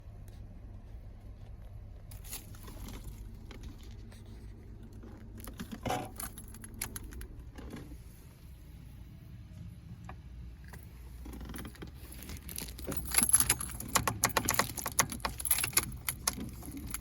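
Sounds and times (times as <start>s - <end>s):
car keys jangling: 2.1s - 4.0s, 4.8s - 7.5s, 11.3s - 17.0s.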